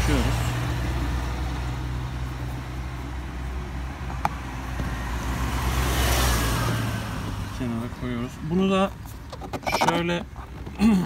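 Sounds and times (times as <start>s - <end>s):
vehicle engine idling: 0.0s - 5.8s
street traffic noise: 0.0s - 11.0s.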